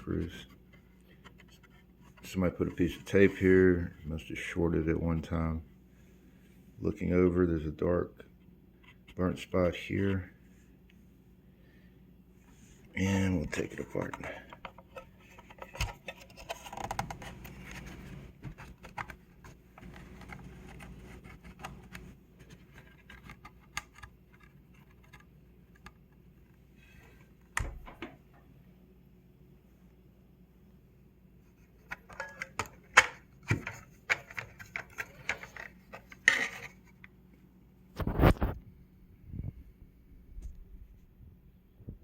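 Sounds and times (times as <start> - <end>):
plastic case parts clattering: 13.4 - 26.0, 31.8 - 37.0.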